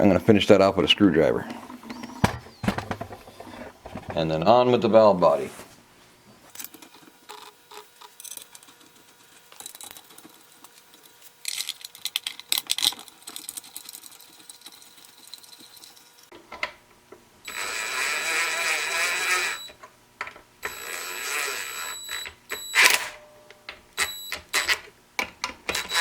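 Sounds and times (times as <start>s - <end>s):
metal parts and tools clicking: 17.5s - 26.0s.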